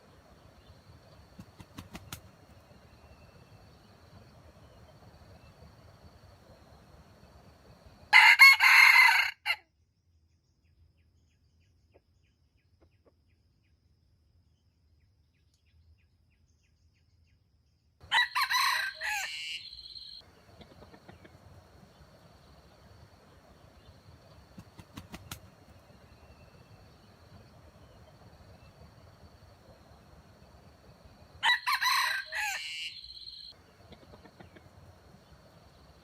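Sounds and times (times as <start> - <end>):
rooster crowing: 8.1 - 9.6, 18.0 - 20.2, 28.4 - 34.6.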